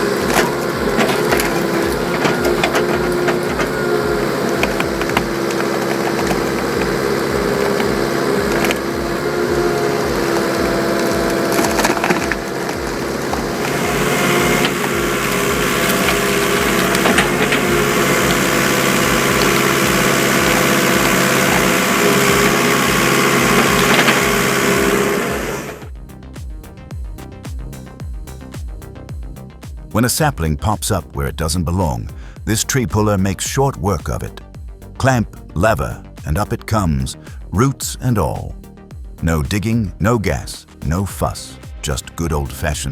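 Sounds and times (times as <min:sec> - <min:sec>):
wood cracking and splintering: 0:00.0 - 0:25.9
background music: 0:00.0 - 0:42.9
excavator engine running: 0:00.0 - 0:42.9.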